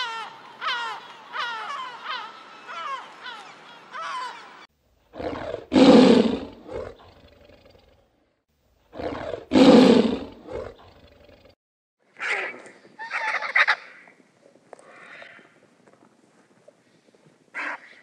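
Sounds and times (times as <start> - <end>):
tiger roaring: 5.1 - 8.0, 8.9 - 11.4.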